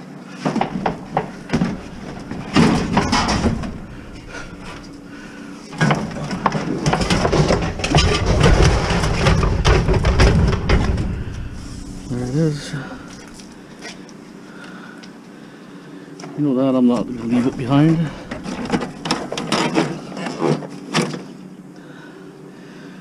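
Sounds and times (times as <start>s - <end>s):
scrap metal knocks and clanks: 0.4s - 13.6s, 17.1s - 21.2s
loud scraping and rumbling: 0.6s - 13.7s, 17.0s - 20.1s.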